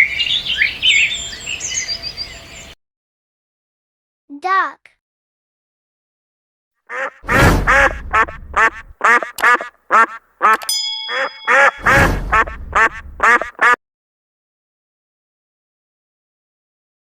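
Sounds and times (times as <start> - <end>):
ducks quacking: 6.9 - 13.8
brief metallic ring: 10.6 - 11.9.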